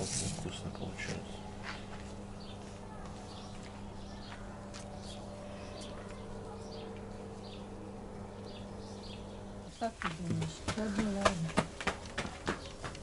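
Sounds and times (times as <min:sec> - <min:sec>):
steady low hum: 0:00.0 - 0:13.0
small bird chirping: 0:01.0 - 0:09.9.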